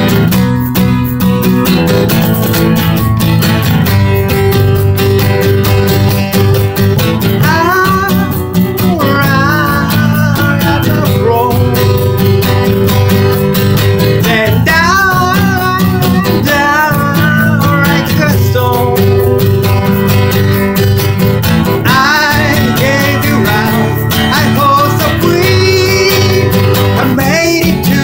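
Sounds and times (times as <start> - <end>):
acoustic guitar strumming: 0.0 - 28.0
person singing: 7.2 - 13.3, 14.0 - 19.7, 21.7 - 28.0.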